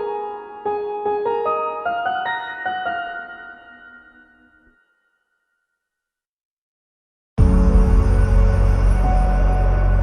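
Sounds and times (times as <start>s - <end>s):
piano notes ringing: 0.0s - 5.0s.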